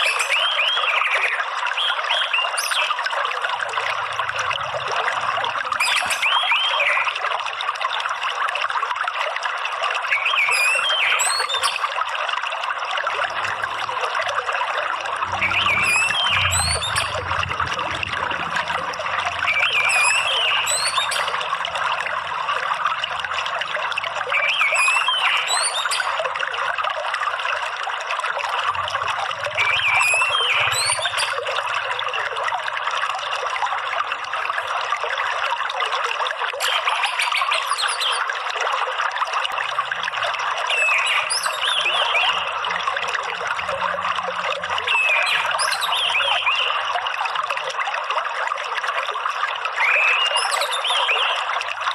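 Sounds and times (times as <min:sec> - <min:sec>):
water trickling and splashing: 0:00.0 - 0:51.9
thrush singing: 0:15.2 - 0:22.1.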